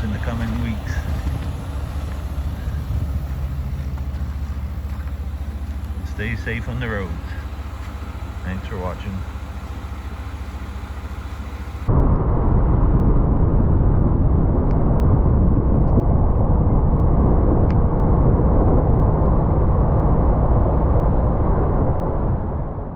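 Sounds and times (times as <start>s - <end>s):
diesel truck engine idling: 0.0s - 11.9s
truck rumbling under way: 0.0s - 12.2s.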